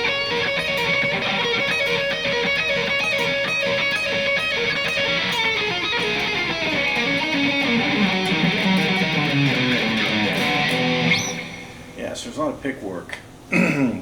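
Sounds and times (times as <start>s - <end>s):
electric guitar rock riff: 0.0s - 12.0s.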